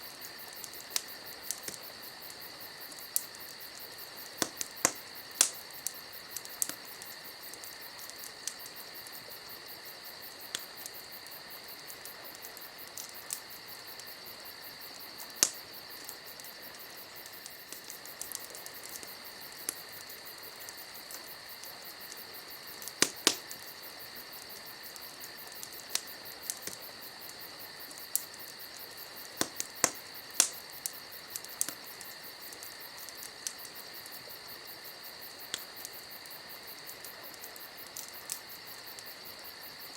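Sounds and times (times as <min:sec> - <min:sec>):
campfire crackling: 0:00.0 - 0:39.9
crickets chirping: 0:00.0 - 0:39.9.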